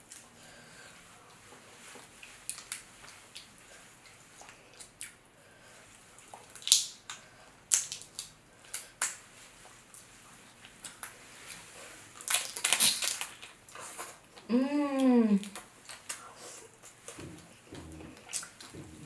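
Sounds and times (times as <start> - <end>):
wet eating sounds: 5.9 - 19.0
crab shell crackling: 12.2 - 13.6.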